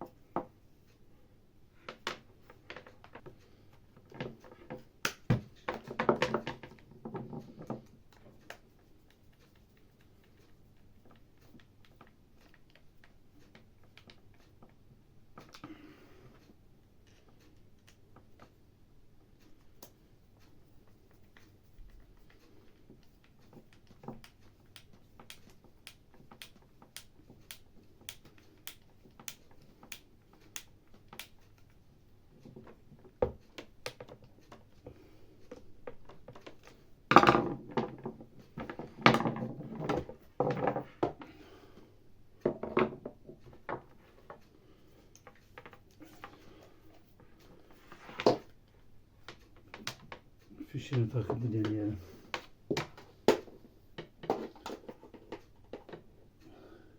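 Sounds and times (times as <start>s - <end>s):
tools clattering and knocking: 4.0s - 7.9s.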